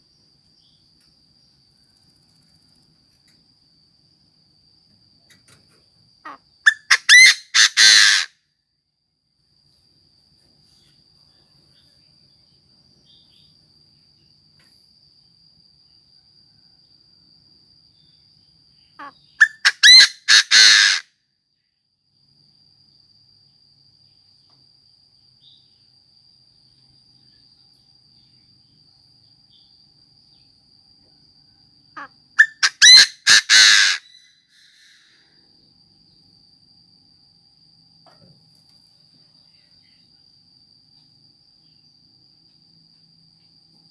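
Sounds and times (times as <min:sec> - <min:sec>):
francolin calling: 0:06.2 - 0:08.3, 0:18.8 - 0:21.0, 0:32.0 - 0:35.2.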